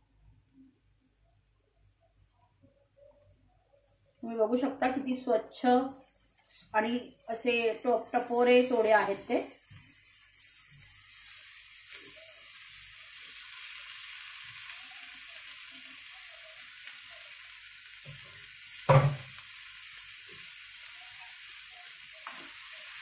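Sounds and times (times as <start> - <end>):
onions frying in oil: 4.2 - 23.0
sharp knock: 18.9 - 19.3.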